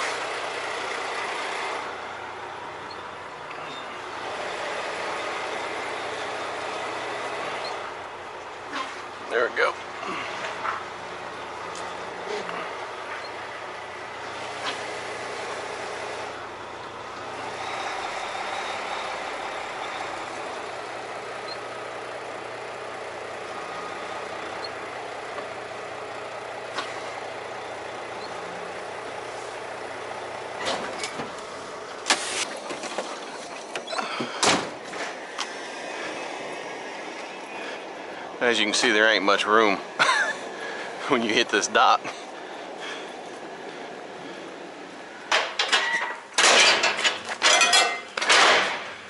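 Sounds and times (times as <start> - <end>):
diesel truck engine running: 0.0 - 49.0
sharp knocks and clatters: 45.3 - 49.0.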